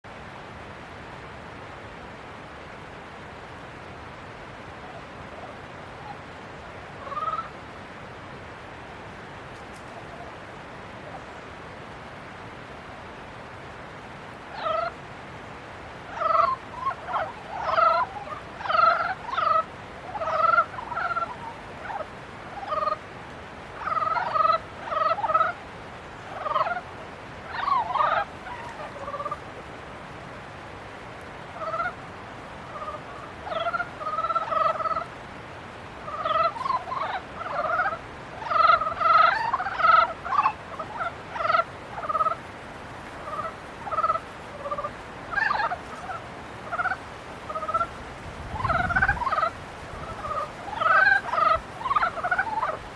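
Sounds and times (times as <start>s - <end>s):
frogs croaking: 4.8s - 7.7s, 14.4s - 15.0s, 16.0s - 29.8s, 31.4s - 52.9s.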